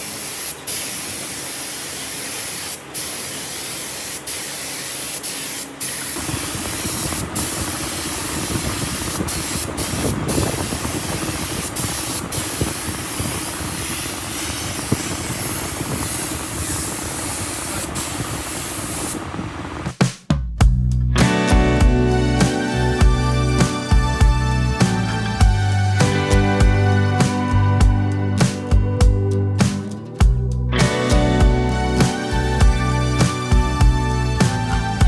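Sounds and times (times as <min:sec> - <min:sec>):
spray gun hissing: 0:00.0 - 0:19.8
low running machine: 0:06.2 - 0:19.9, 0:21.2 - 0:35.0.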